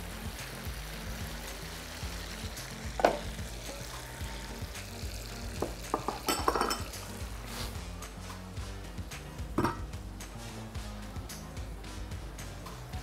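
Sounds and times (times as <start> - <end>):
meat sizzling and bubbling: 0.0 - 13.0
metal clank: 9.6 - 9.9.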